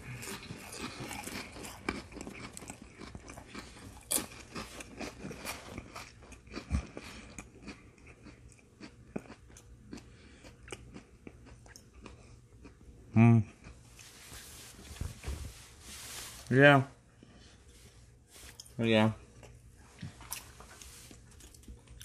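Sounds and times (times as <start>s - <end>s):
crunchy cracker chewing: 0.0s - 12.8s.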